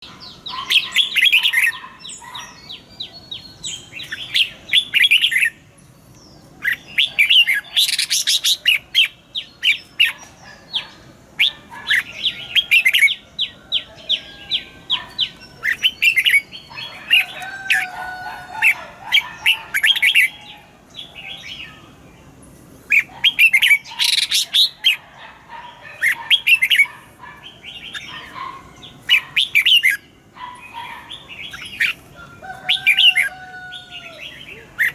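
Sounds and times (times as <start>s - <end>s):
bird chirping phrases: 0.0s - 34.9s.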